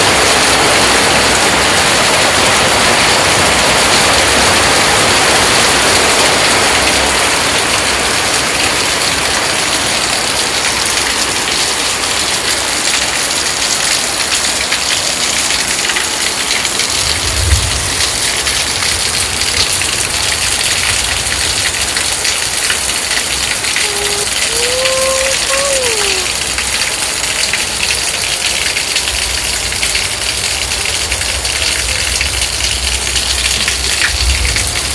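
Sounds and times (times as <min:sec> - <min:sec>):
rain falling: 0:00.0 - 0:34.9
faint kitten meow: 0:23.8 - 0:26.4.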